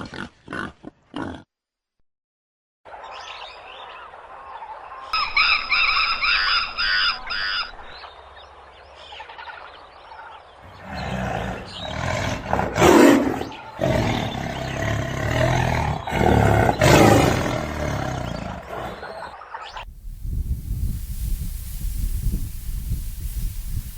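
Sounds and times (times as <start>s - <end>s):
high bird calls: 5.2s - 17.1s
large animal's rough calls: 10.7s - 19.2s.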